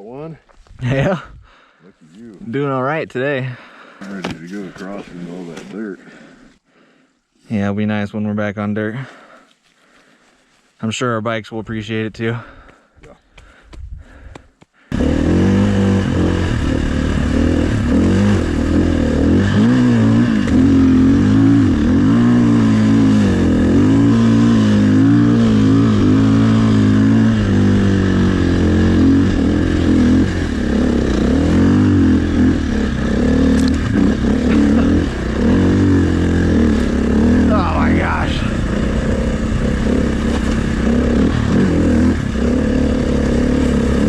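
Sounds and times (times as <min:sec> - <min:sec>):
dirt bike engine revving: 0:14.9 - 0:44.0.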